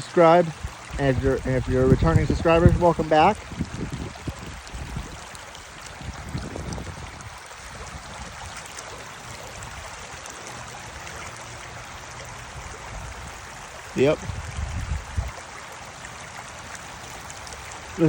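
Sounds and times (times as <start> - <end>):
creek water rushing over rocks: 0.0 - 18.0
low rumbling: 0.6 - 5.2.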